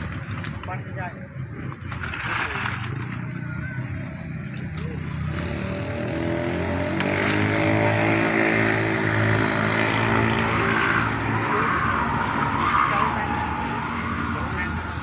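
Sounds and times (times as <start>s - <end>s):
chainsaw engine revving: 5.3s - 11.4s.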